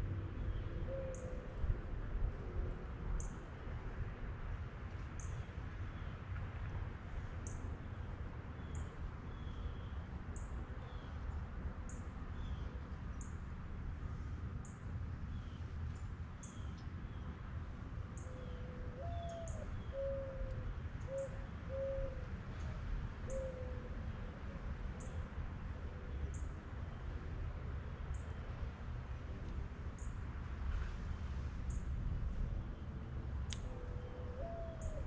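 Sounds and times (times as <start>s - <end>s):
bird cooing: 18.2s - 22.2s, 23.3s - 23.9s, 33.7s - 35.0s.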